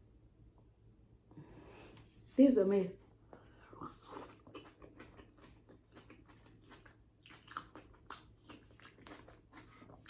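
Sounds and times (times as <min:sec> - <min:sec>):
person chewing: 0:03.4 - 0:10.0.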